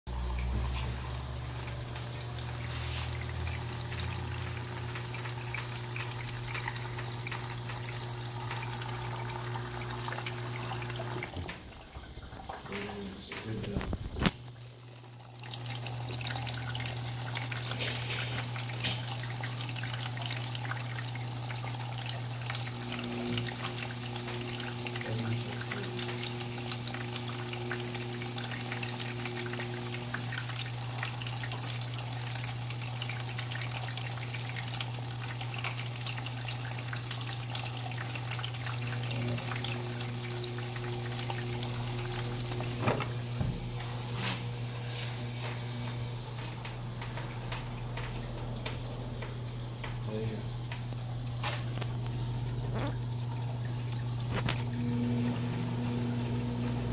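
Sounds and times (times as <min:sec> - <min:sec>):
water rushing into washing machine: 0:00.1 - 0:56.9
constant low hum: 0:36.4 - 0:56.9
higher humming tone: 0:39.1 - 0:56.9.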